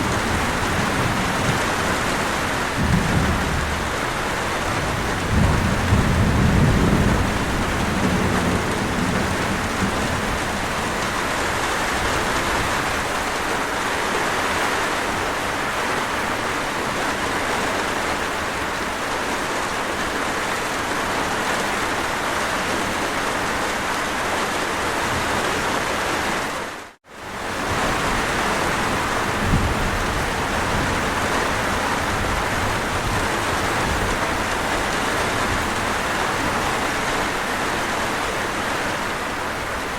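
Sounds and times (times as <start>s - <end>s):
low thunder rumble: 0.0s - 12.8s, 27.6s - 36.7s
steady rain: 0.0s - 39.9s.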